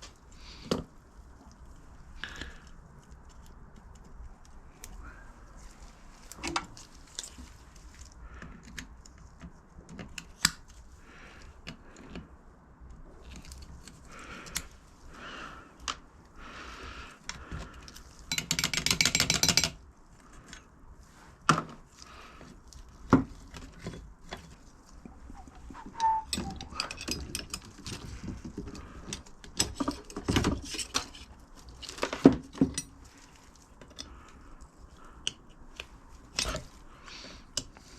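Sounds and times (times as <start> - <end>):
metal scraping: 25.1 - 27.6
metal tools clinking and knocking: 26.0 - 32.9.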